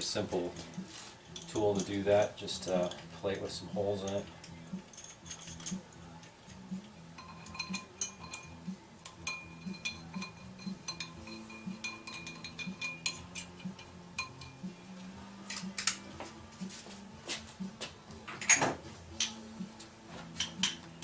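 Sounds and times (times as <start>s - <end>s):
metal tools clinking on steel: 0.3s - 14.7s, 18.4s - 19.4s, 20.3s - 21.0s.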